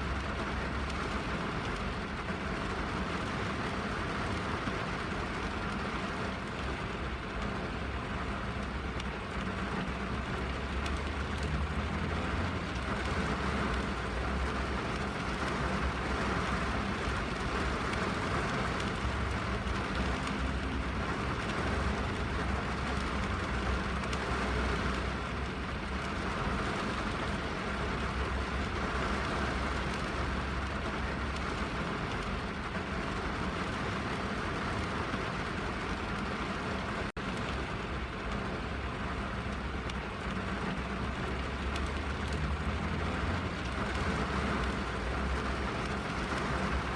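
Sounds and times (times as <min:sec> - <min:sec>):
rain on car roof: 0:00.0 - 0:46.9.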